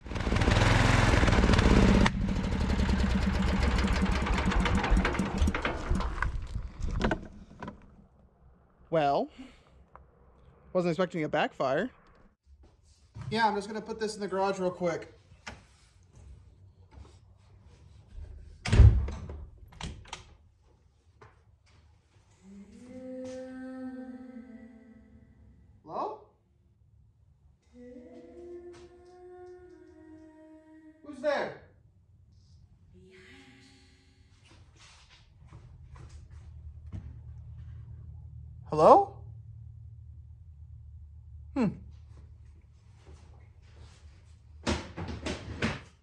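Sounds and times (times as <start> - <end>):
small engine running and backfiring: 0.0 - 6.2
heavy door slamming: 18.6 - 20.0
steady low tone: 35.8 - 42.6.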